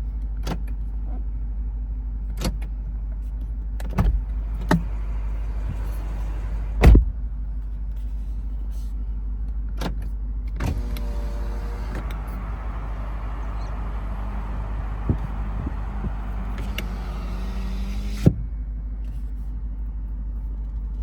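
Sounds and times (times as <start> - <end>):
car engine idling: 3.9 - 7.0, 10.7 - 18.3
heavy thump: 3.9 - 7.1, 10.7 - 18.4
sharp clicks and knocks: 10.6 - 18.3
short steady hum: 10.7 - 18.3.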